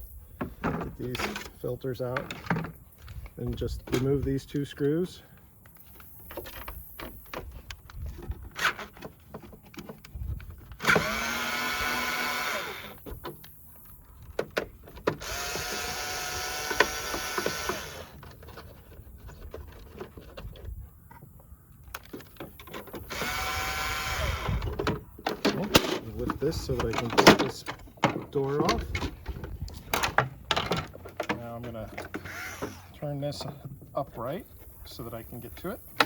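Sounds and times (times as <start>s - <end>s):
power driver motor whirring: 10.8s - 13.0s, 15.2s - 18.2s, 23.0s - 24.7s, 32.2s - 32.9s
clicks and knocks of parts: 12.9s - 15.9s, 16.6s - 23.4s, 24.4s - 32.7s.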